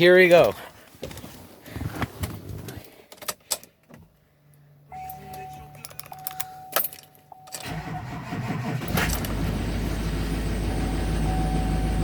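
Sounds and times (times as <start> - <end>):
diesel engine idling: 7.6 - 12.0.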